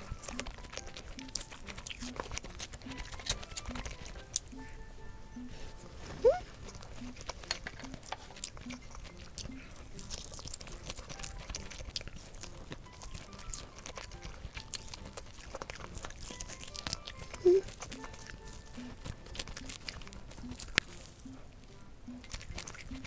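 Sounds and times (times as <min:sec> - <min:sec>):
crunchy chewing: 0:00.0 - 0:23.0
faint background music: 0:00.0 - 0:23.0.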